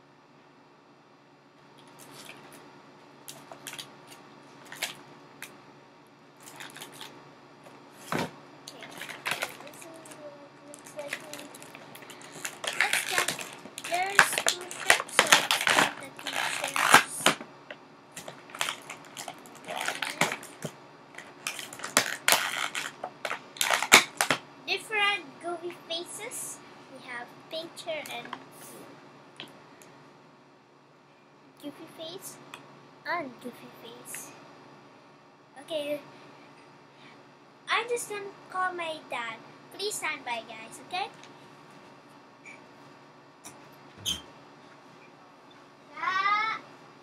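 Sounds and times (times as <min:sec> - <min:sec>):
plastic packaging crinkling: 0:03.3 - 0:05.0, 0:06.4 - 0:07.1, 0:08.0 - 0:17.4, 0:18.2 - 0:24.4
plastic toy pieces clicking: 0:12.4 - 0:17.4.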